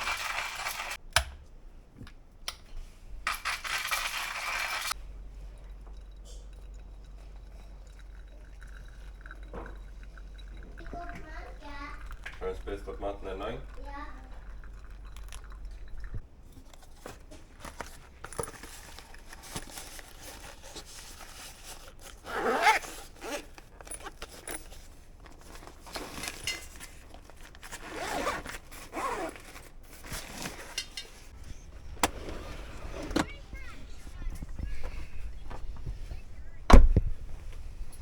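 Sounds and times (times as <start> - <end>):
zipper pulled open and shut: 22.1 - 24.5, 27.6 - 30.8.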